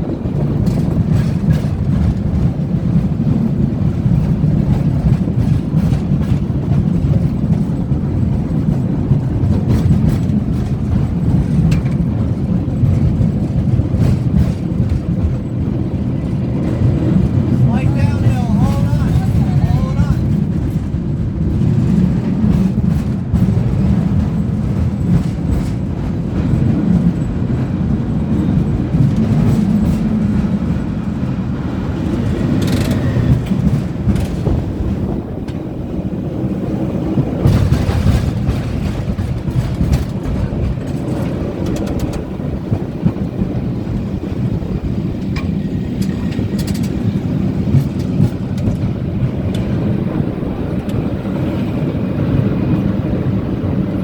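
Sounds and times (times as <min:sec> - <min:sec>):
cable car rumbling on rails: 0:00.0 - 0:54.0
clicks and clanks: 0:32.2 - 0:34.7, 0:37.4 - 0:43.2, 0:45.2 - 0:49.8.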